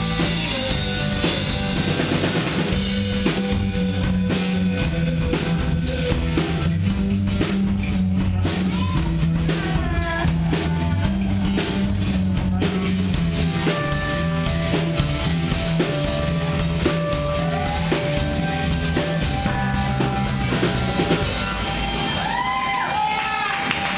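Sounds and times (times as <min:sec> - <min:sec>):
electric guitar with pitch bends: 0:00.0 - 0:22.6
bass line: 0:00.0 - 0:23.9
drum kit: 0:00.0 - 0:23.9.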